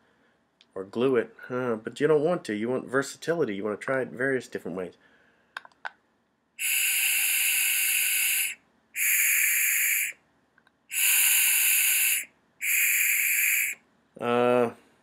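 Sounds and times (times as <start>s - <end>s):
breath hissing through pump: 6.6s - 10.2s, 10.9s - 13.8s.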